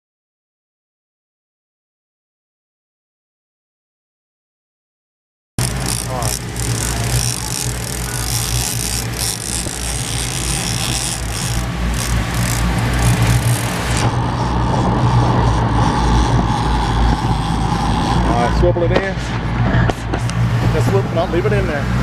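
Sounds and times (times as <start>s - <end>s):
boat engine running: 5.6s - 22.0s
rushing wind and water: 12.6s - 22.0s.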